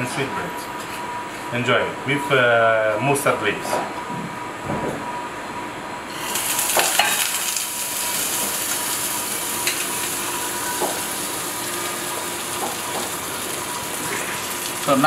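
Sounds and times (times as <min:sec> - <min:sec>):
food sizzling in a frying pan: 0:06.1 - 0:15.0.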